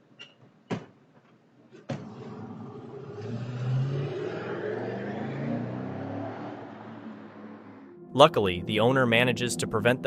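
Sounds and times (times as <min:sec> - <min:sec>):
car engine revving: 0:02.0 - 0:08.0.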